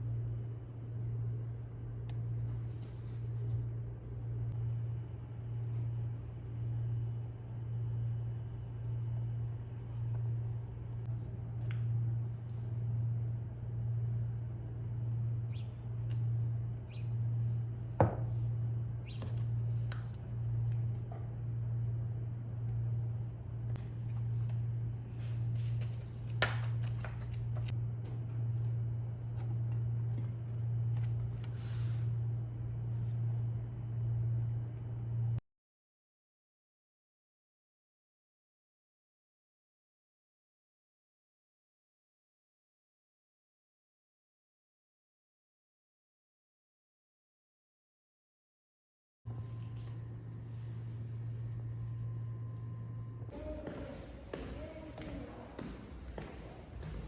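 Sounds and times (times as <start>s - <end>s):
steady low hum: 0.0s - 35.4s, 49.3s - 57.0s.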